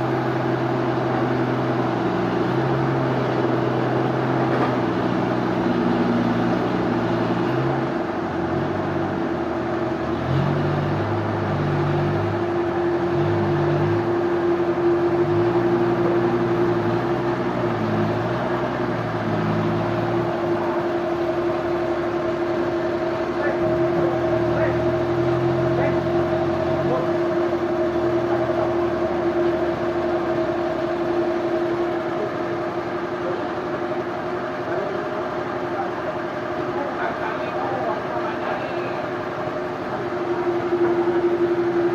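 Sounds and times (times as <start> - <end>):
low engine note: 0.0 - 41.9
sawmill machinery humming: 0.0 - 41.9
steady pitched whine: 10.8 - 41.9.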